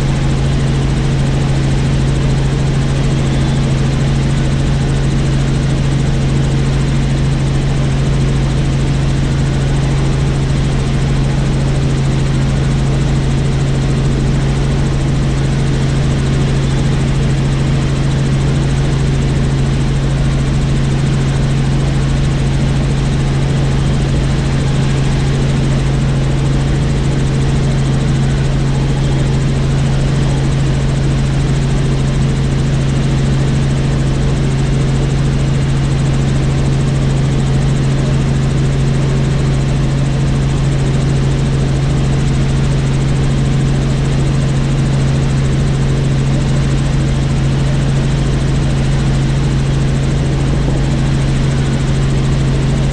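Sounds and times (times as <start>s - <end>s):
helicopter rotor and engine drone: 0.0s - 52.9s.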